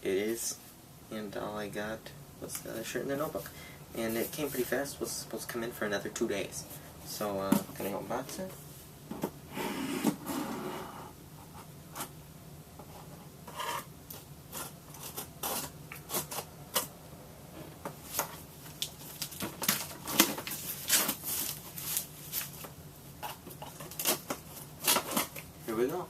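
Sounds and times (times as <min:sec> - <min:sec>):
package being torn open: 0:23.2 - 0:25.5.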